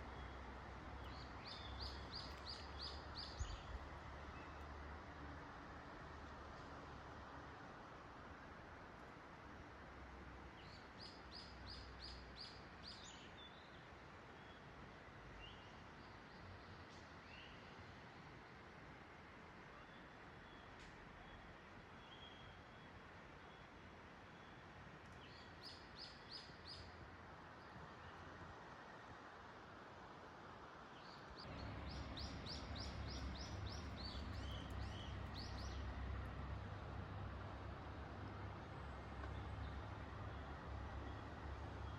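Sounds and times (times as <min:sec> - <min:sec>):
songbird singing: 0:00.0 - 0:04.8, 0:10.6 - 0:14.7, 0:15.4 - 0:17.8, 0:19.7 - 0:28.2, 0:30.9 - 0:38.0, 0:38.6 - 0:41.9
small songbird singing: 0:01.0 - 0:04.6, 0:25.2 - 0:27.0, 0:31.0 - 0:36.0.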